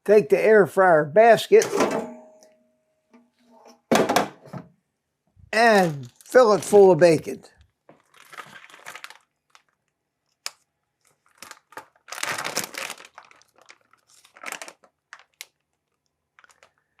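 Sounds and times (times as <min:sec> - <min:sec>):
plastic packaging crinkling: 0:05.6 - 0:17.0.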